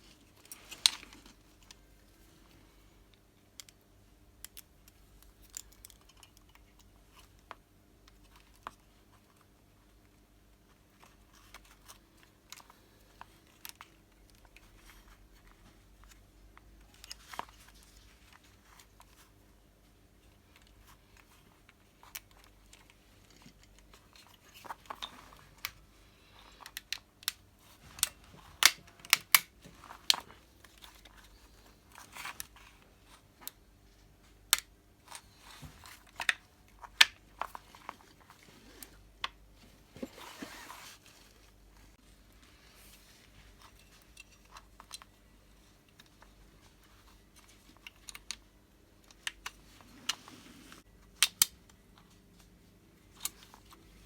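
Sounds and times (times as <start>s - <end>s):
hands clicking and tapping parts: 3.1s - 9.5s, 20.5s - 39.4s, 45.8s - 50.2s.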